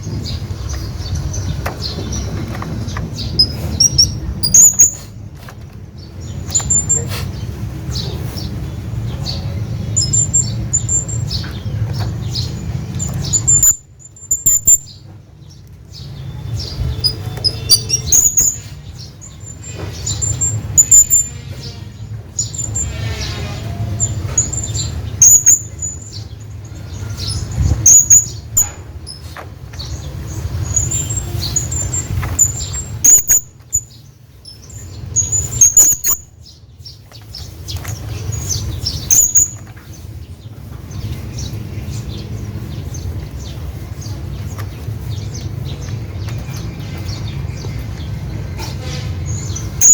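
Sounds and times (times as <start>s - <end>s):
parrot squeaky calls: 3.3s - 5.0s, 13.3s - 14.9s, 16.6s - 18.8s, 20.1s - 21.4s, 24.0s - 26.0s, 30.6s - 33.9s, 35.2s - 36.3s, 38.4s - 39.6s, 49.4s - 49.9s.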